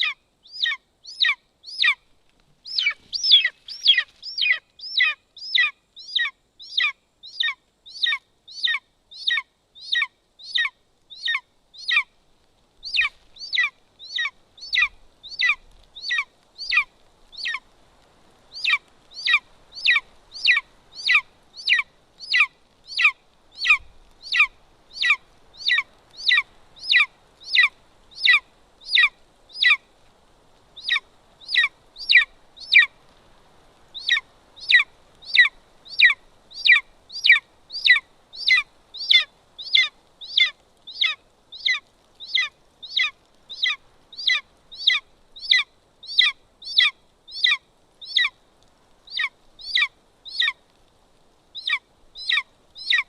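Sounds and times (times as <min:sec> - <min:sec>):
eagle nestling begging calls: 0:02.6 - 0:12.0.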